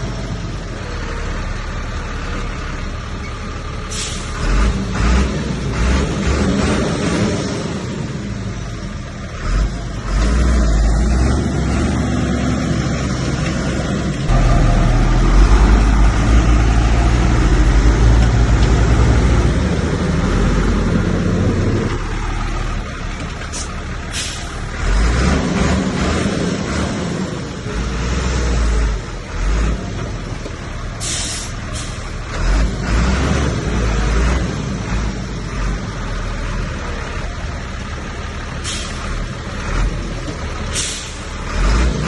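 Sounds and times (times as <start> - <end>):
heavy diesel machinery running: 0.0 - 42.0
short hiss: 3.9 - 4.4, 31.0 - 32.0, 40.7 - 41.3.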